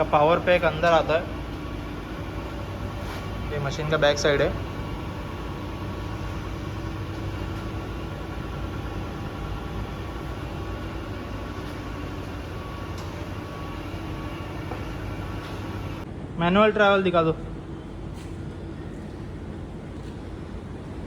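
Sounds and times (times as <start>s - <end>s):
grinding machine humming: 0.0s - 16.1s.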